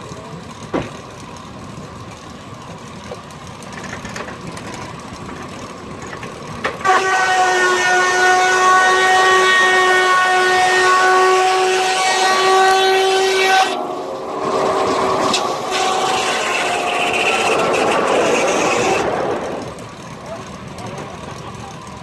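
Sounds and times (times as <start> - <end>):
steam whistle blowing: 6.9 - 19.1
rushing noise with faint tones: 13.3 - 22.0.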